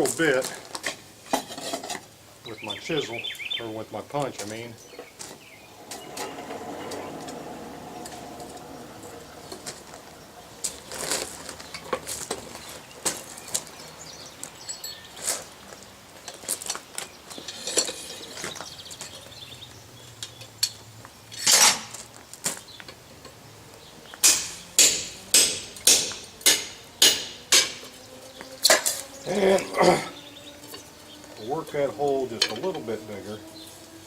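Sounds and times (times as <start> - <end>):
light metal clinks: 14.6 - 15.3.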